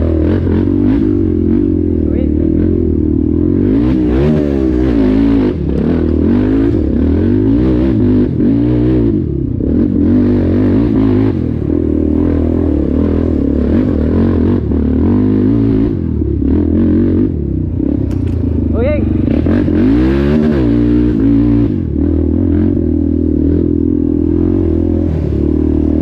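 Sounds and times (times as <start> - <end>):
atv engine revving: 0.0 - 26.0.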